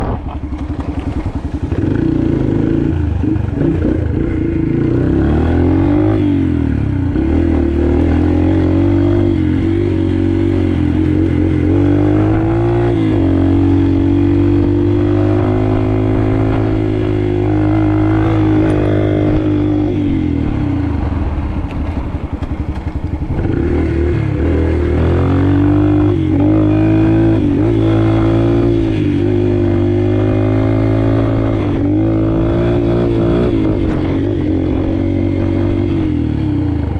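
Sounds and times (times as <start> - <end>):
motorbike engine revving: 0.0 - 36.9.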